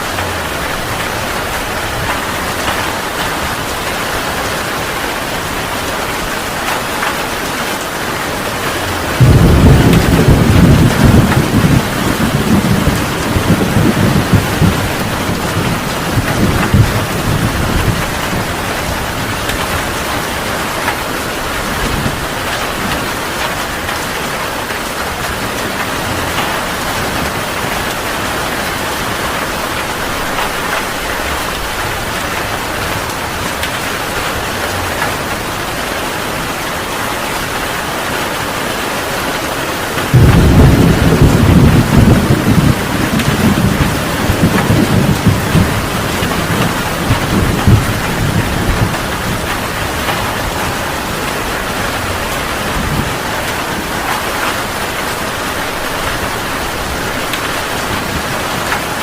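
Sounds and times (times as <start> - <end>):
thunder rumbling: 0.0 - 38.1, 39.9 - 59.0
heavy rain: 0.0 - 59.0
loud thunder clap: 8.8 - 21.1, 40.1 - 58.9.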